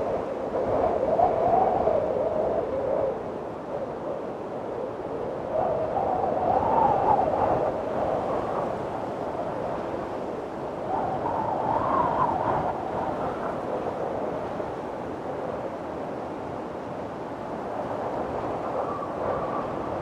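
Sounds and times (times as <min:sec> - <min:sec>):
strong wind rushing: 0:17.5 - 0:20.0
wind gust whistle: 0:17.7 - 0:20.0.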